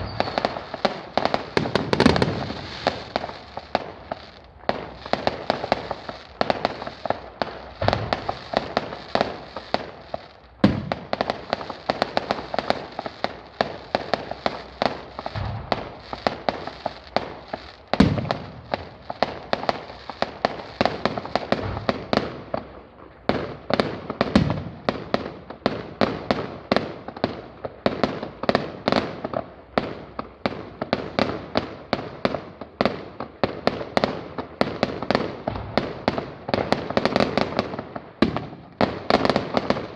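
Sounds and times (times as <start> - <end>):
deep firework booms: 0.0 - 22.6
fireworks cracking and banging: 0.0 - 39.9.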